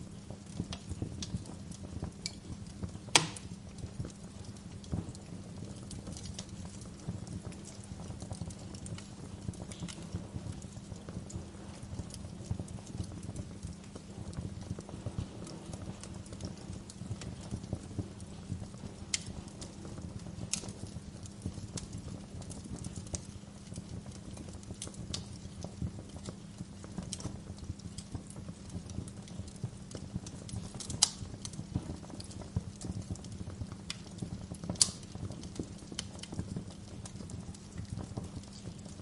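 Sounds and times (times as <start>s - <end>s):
low rumble of burning logs: 0.0s - 39.0s
sharp pops and snaps of fire: 0.0s - 39.0s
wood fire crackling: 0.0s - 39.0s.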